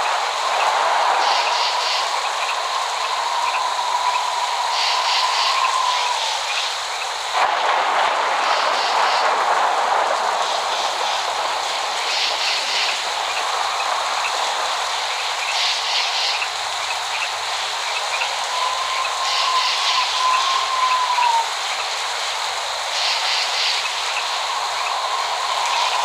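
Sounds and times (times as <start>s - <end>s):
higher hissing bursts: 0.0s - 6.8s, 18.2s - 21.6s, 22.8s - 26.0s
steady rain: 0.0s - 26.0s
thin whistling tone: 18.4s - 21.4s.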